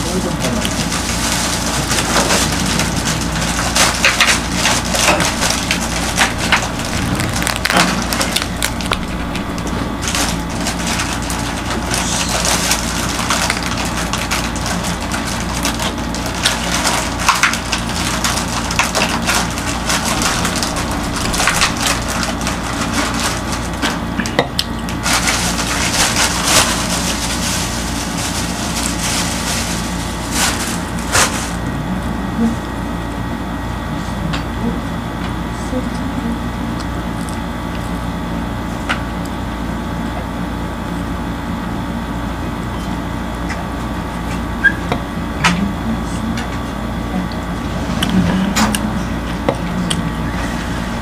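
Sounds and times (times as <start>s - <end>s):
chewing and crunching crust: 0.0s - 32.6s
steady low hum: 0.0s - 51.0s.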